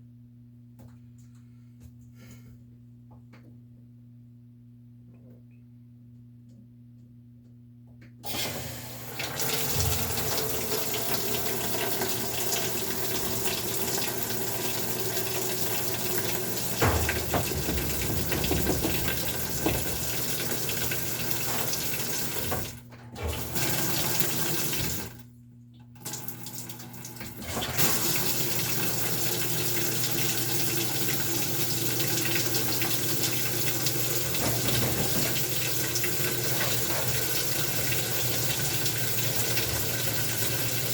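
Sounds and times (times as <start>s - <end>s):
water rushing into washer tub: 8.2s - 40.9s.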